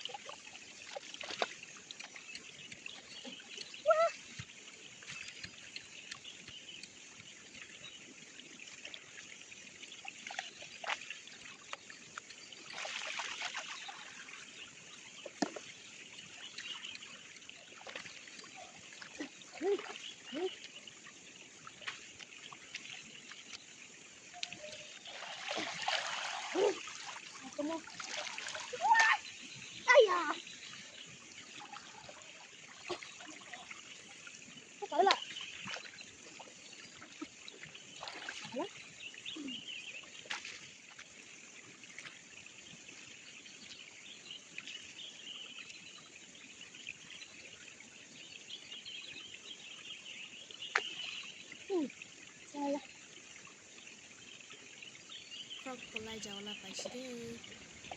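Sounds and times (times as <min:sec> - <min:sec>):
water splashing: 0:00.0 - 0:20.9, 0:24.3 - 0:34.2, 0:34.8 - 0:38.8, 0:55.5 - 0:57.9
river water running: 0:00.0 - 0:57.9.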